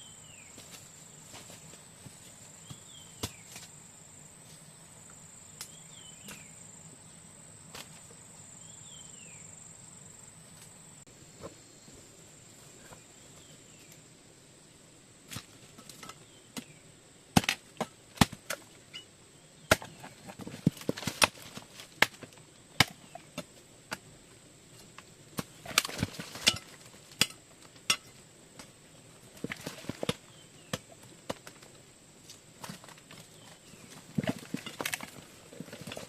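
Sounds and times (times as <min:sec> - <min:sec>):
high insect drone: 0:00.0 - 0:15.3.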